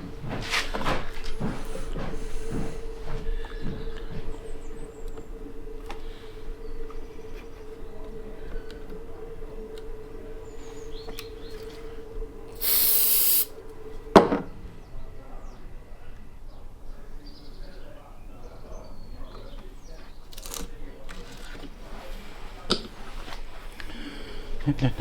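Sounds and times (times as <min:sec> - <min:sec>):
steady machine hum: 0:00.0 - 0:25.0
short hiss: 0:12.6 - 0:13.6.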